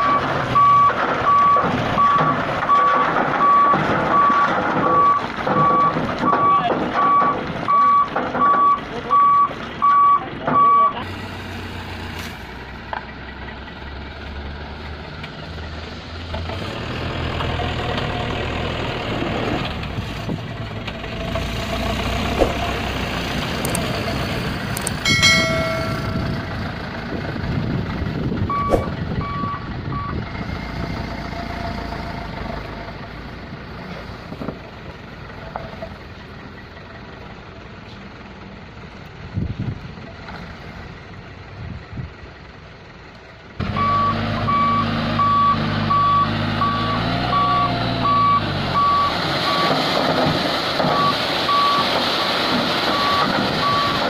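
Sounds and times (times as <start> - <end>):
truck reversing alarm beeping: 0.0 - 11.0, 25.0 - 27.0, 28.4 - 30.4, 43.6 - 50.0, 50.9 - 54.0
diesel engine running: 0.0 - 54.0.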